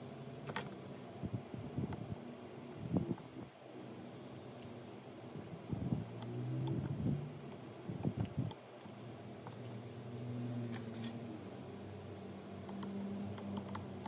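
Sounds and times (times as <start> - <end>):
tools and parts clicking: 0.5 - 0.9.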